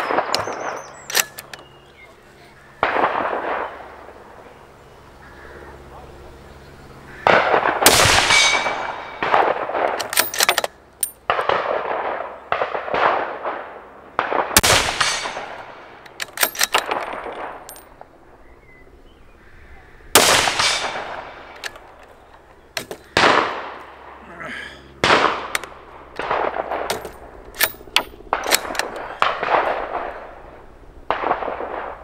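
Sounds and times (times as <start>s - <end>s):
echoing gunshots: 0.0s - 1.4s, 2.8s - 4.4s, 7.1s - 10.5s, 11.2s - 18.1s, 20.1s - 21.9s, 22.7s - 24.2s, 24.9s - 32.0s.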